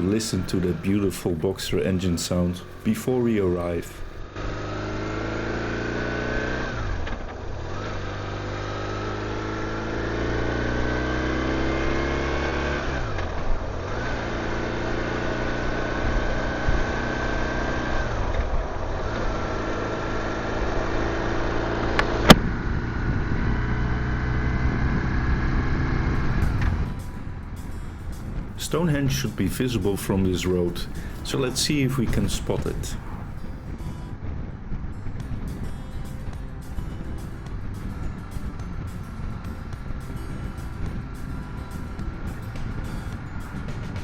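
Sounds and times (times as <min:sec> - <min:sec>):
motorcycle engine pulling hard: 0:00.0 - 0:35.6
gear changes: 0:00.0 - 0:44.0.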